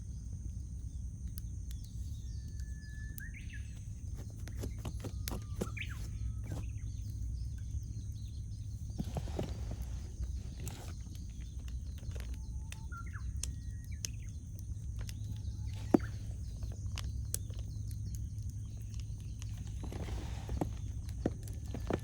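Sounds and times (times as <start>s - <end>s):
campfire crackling and popping: 0.1s - 6.0s, 6.6s - 22.0s
bird whistling: 2.2s - 7.1s, 12.1s - 14.4s.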